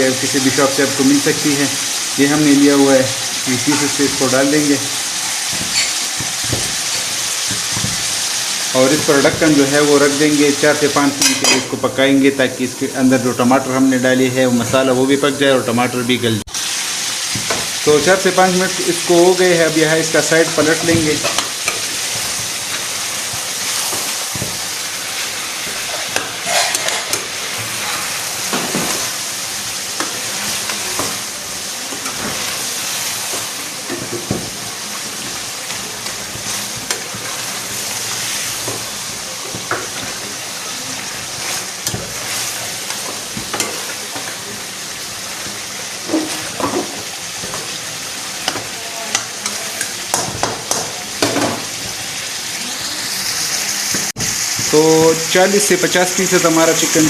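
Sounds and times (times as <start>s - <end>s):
chicken sizzling in hot oil: 0.0s - 57.0s
spoon scraping pot: 3.5s - 9.7s, 25.1s - 29.1s.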